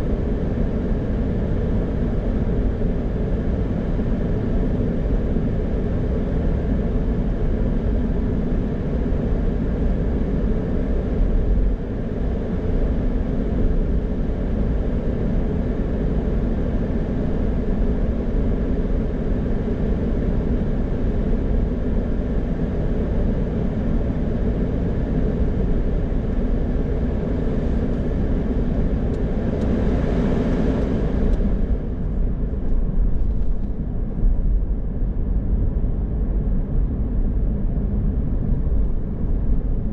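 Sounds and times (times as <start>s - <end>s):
car tyres and engine rumble: 19.3s - 39.9s.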